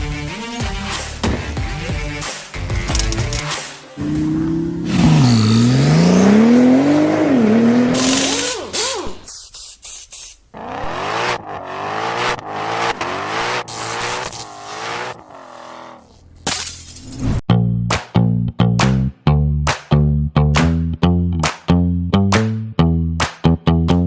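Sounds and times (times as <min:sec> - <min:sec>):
car engine revving: 0:04.0 - 0:09.2, 0:10.6 - 0:16.4.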